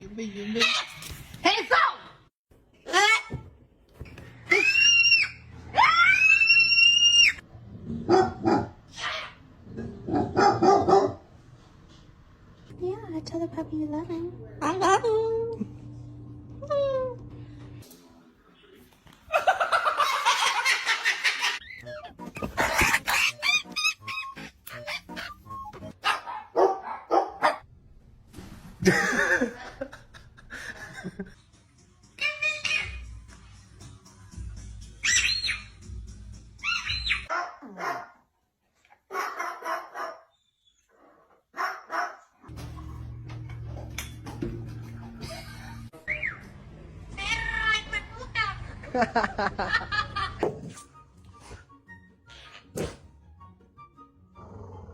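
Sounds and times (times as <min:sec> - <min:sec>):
dog yelping barks: 0:08.1 - 0:09.4, 0:10.1 - 0:11.2, 0:22.5 - 0:27.6, 0:36.6 - 0:38.2, 0:39.1 - 0:40.3, 0:41.6 - 0:42.3.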